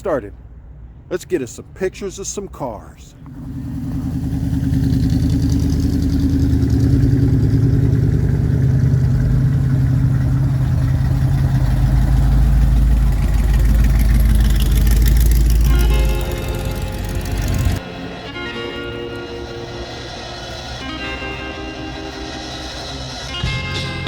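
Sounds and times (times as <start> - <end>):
vehicle engine low rumble: 0.0 - 24.0
music: 15.7 - 24.0.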